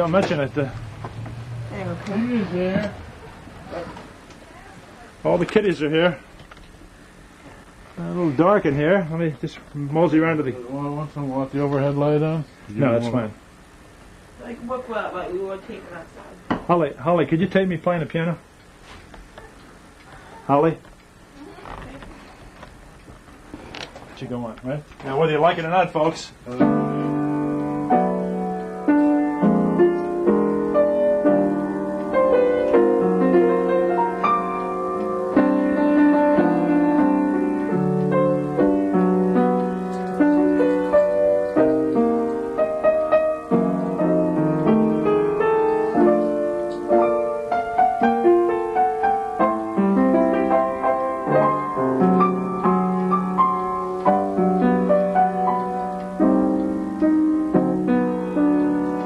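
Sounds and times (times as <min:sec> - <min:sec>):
piano playing chords and melody: 0:26.6 - 0:59.0.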